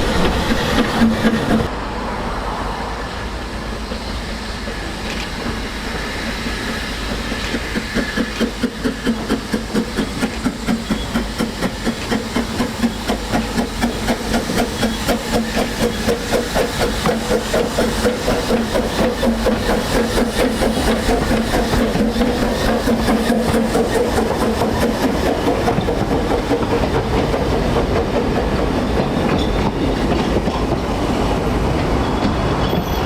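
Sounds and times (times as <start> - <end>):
steam locomotive chuffing: 0.0 - 1.8, 3.3 - 33.0
hiss of steam: 2.3 - 32.6.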